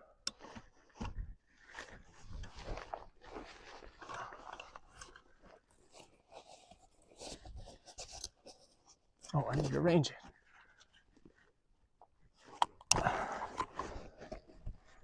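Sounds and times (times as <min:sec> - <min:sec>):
gear crunching and rustling: 0:00.3 - 0:08.4.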